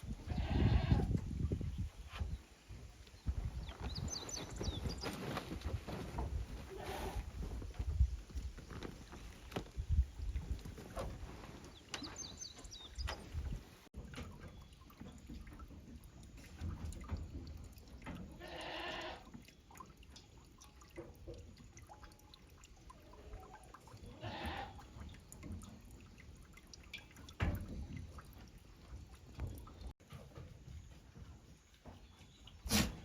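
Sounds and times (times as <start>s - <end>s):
wind rumbling on microphone: 0.0s - 11.4s
goat bleating: 0.3s - 1.1s, 18.4s - 19.2s, 24.1s - 24.8s.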